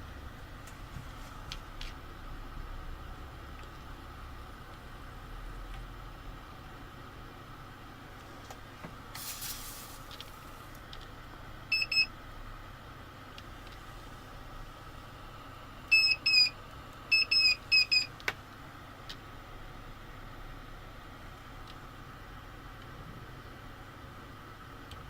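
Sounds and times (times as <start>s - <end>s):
steady background hiss: 0.0s - 17.1s
short electronic beeps: 11.7s - 12.1s, 15.9s - 16.5s.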